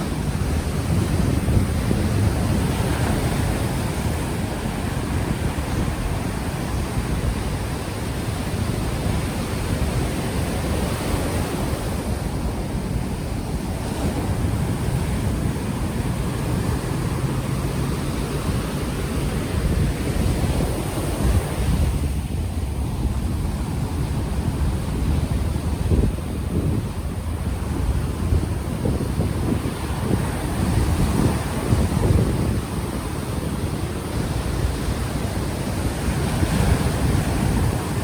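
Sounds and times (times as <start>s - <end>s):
ocean waves washing ashore: 0.0s - 38.0s
wind buffeting microphone: 0.0s - 38.0s.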